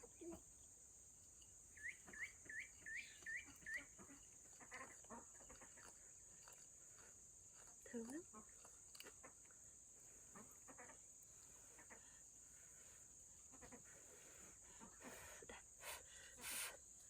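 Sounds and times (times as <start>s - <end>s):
high-pitched insect chirring: 1.2s - 9.2s.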